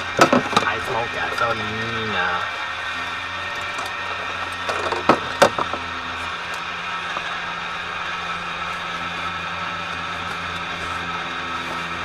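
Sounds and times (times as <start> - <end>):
small airplane engine drone: 0.0 - 12.0.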